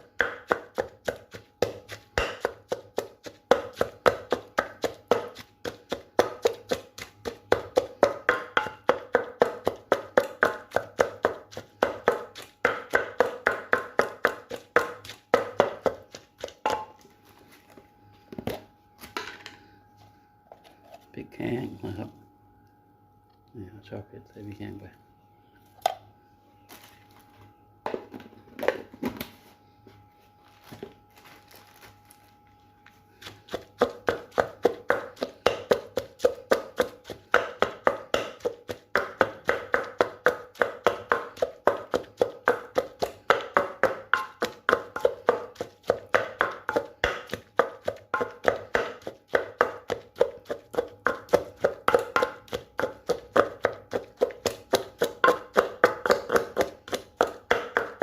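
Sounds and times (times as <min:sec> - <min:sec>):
pestle pounding in mortar: 0:00.0 - 0:17.0, 0:33.2 - 0:58.0.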